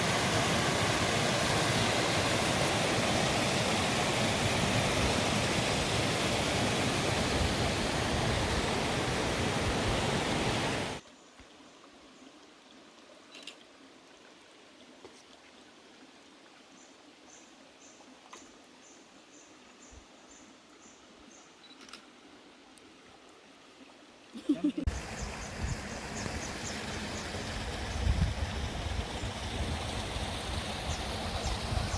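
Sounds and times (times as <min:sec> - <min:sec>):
waterfall rushing: 0:00.0 - 0:11.0, 0:24.8 - 0:31.9.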